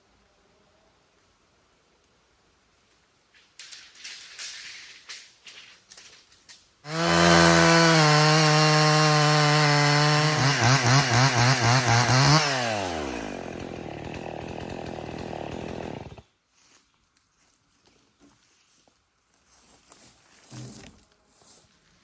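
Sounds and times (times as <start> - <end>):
chainsaw cutting log: 6.8 - 16.2.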